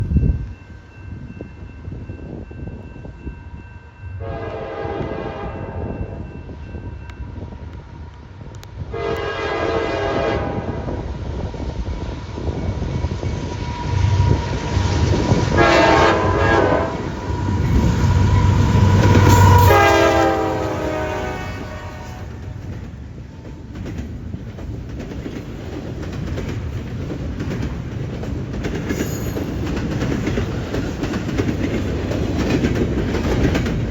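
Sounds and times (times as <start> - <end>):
locomotive passing rumble: 0.0 - 33.9
locomotive horn: 4.2 - 5.9, 8.9 - 10.8, 15.5 - 22.6
freight cars clickety-clack: 22.1 - 33.9.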